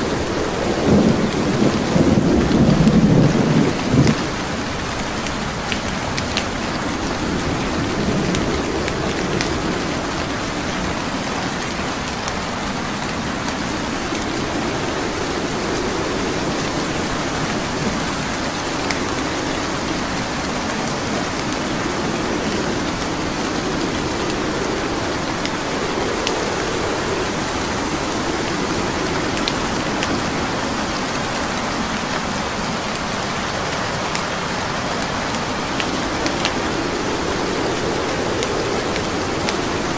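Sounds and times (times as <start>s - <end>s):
burning wood crackling: 0.0s - 39.9s
steady rain: 0.0s - 39.9s.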